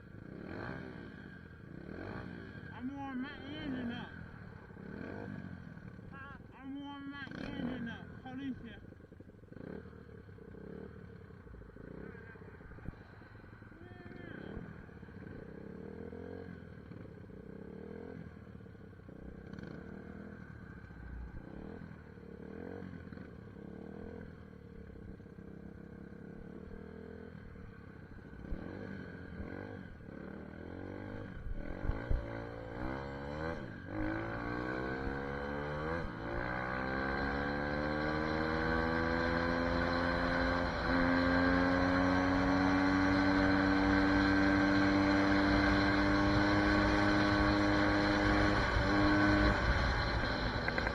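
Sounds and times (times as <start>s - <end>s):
dirt bike engine revving: 0.2s - 8.9s, 28.3s - 50.9s.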